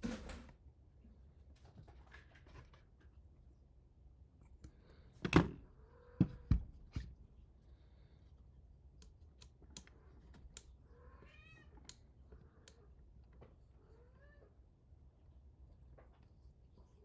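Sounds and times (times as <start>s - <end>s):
meow-like animal call: 10.9s - 11.8s, 13.8s - 14.5s.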